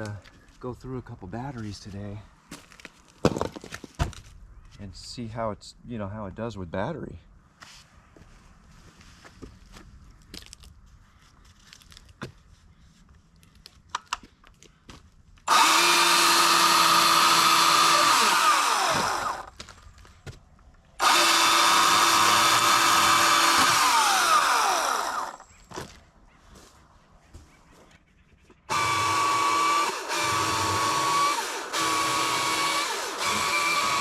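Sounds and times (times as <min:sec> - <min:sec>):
chainsaw whining: 0:15.5 - 0:19.6, 0:21.0 - 0:25.5, 0:28.7 - 0:34.0.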